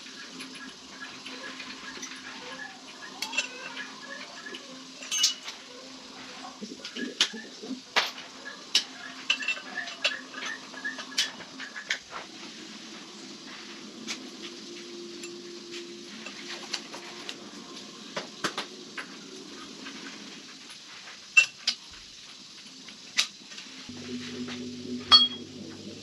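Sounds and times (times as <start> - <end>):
steady low hum: 23.8 - 26.0.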